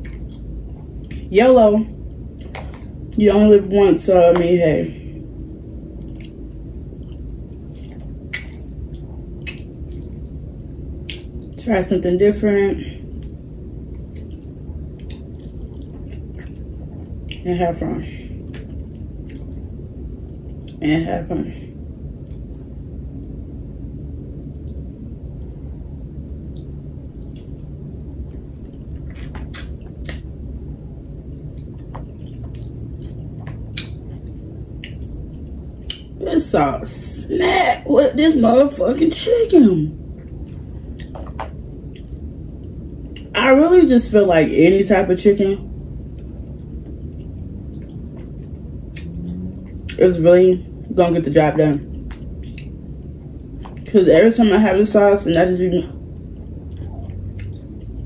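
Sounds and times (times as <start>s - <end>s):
person chewing food: 0.0s - 1.2s, 5.6s - 10.4s, 13.1s - 17.4s, 18.4s - 20.8s, 24.6s - 36.1s, 40.2s - 43.3s, 46.0s - 50.0s, 51.9s - 53.9s, 55.9s - 58.0s
wet mouth clicks and smacks: 0.0s - 1.2s, 6.0s - 6.5s, 7.8s - 10.3s, 11.0s - 11.6s, 18.5s - 19.7s, 26.3s - 30.3s, 31.0s - 36.1s, 40.4s - 43.3s, 46.1s - 50.0s, 52.0s - 53.9s, 56.1s - 58.0s
low background hum: 0.0s - 58.0s.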